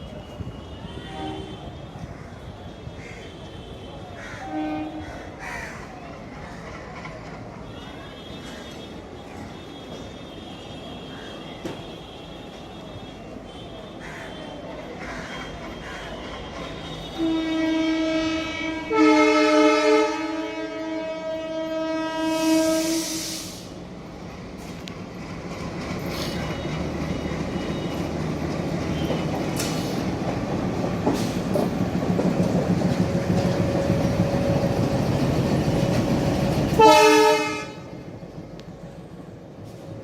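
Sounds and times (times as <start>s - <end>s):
locomotive engine and wheels rumbling: 0.0s - 40.0s
locomotive air horn: 0.3s - 2.1s, 3.4s - 5.1s, 16.4s - 23.8s, 36.8s - 38.0s
hiss burst: 22.4s - 23.7s.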